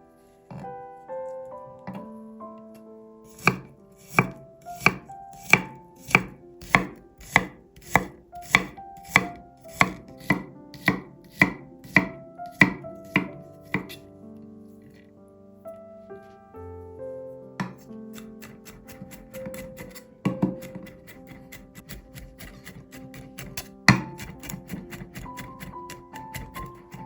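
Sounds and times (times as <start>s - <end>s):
soft piano music: 0.0s - 27.0s
knife chopping on cutting board: 3.3s - 14.0s, 17.6s - 27.0s.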